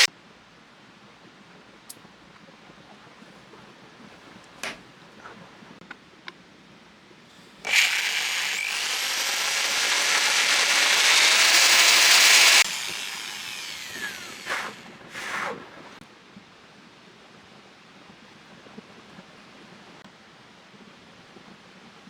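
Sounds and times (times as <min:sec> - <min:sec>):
electric power tool whining: 0:07.6 - 0:15.2.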